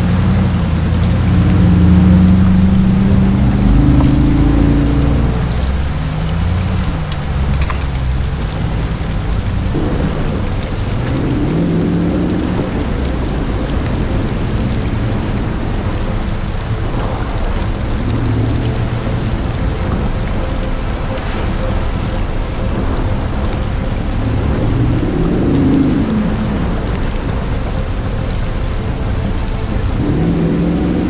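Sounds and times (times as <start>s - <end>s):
car engine running: 0.0s - 21.7s
heavy rain falling: 0.0s - 31.0s.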